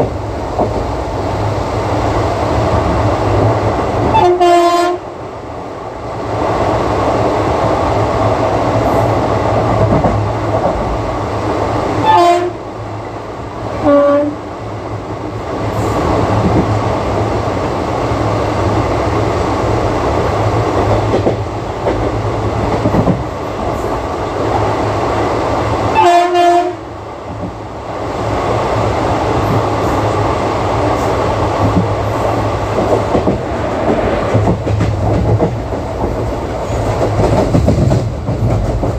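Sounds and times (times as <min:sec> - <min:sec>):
train wheels rumbling on track: 0:00.0 - 0:38.9
locomotive horn blasts: 0:04.1 - 0:05.0, 0:12.0 - 0:12.6, 0:13.8 - 0:14.4, 0:25.9 - 0:26.8.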